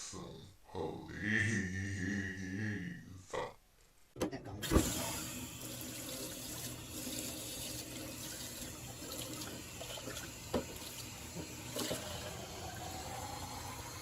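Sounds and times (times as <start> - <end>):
tap running into sink: 9.1 - 12.0.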